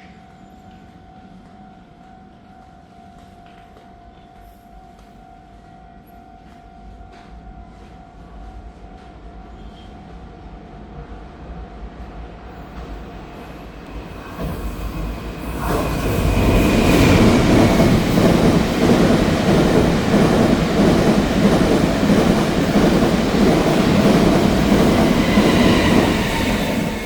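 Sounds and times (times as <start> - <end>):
train passing at speed: 10.2 - 27.0
wheels clickety-clack on rail: 13.8 - 27.0.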